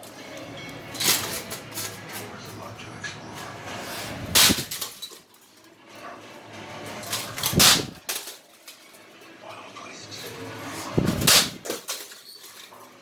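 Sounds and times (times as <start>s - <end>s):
metal rattling: 0.8s - 2.6s, 4.1s - 9.4s, 10.2s - 13.0s
toaster smashed metallic crash: 4.2s - 5.3s, 7.0s - 8.5s, 11.0s - 12.6s.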